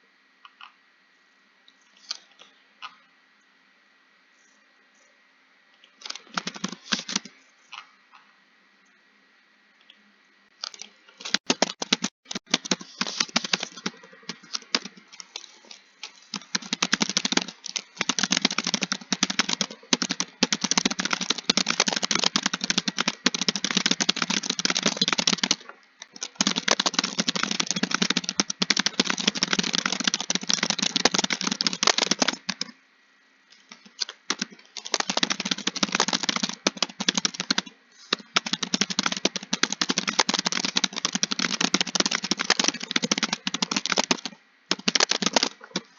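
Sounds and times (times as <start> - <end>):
typing on a computer keyboard: 6.0 - 7.3, 10.6 - 32.7, 33.6 - 45.9.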